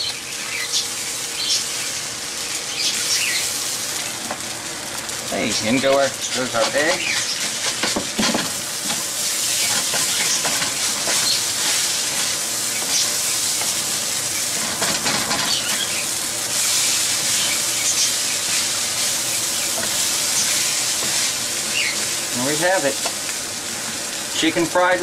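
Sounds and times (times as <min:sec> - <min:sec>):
rice sizzling in a pan: 0:00.0 - 0:25.0
utensil scraping and clicking on pan: 0:05.8 - 0:09.0, 0:09.6 - 0:13.8.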